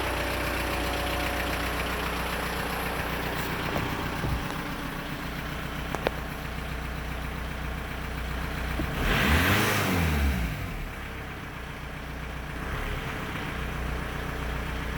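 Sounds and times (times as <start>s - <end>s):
car engine idling and revving: 0.0s - 14.9s.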